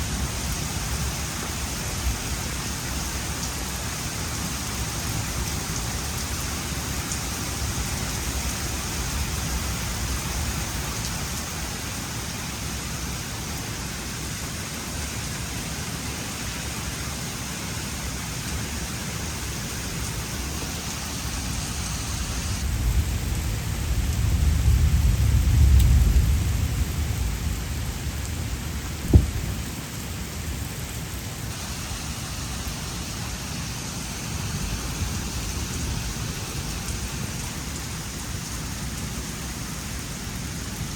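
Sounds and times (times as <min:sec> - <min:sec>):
steady rain: 0:00.0 - 0:40.9
low rumble of thunder: 0:22.6 - 0:29.9
sharp thunder crack: 0:29.0 - 0:29.6.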